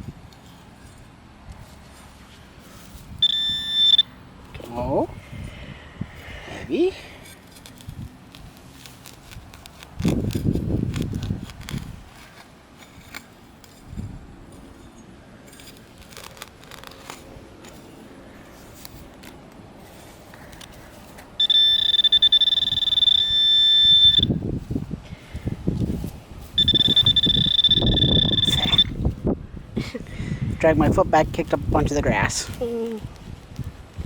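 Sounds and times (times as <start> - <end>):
digging in grass and soil: 0.0 - 34.0
metal detector high-pitched buzz: 3.2 - 4.2, 21.4 - 24.4, 26.6 - 29.0.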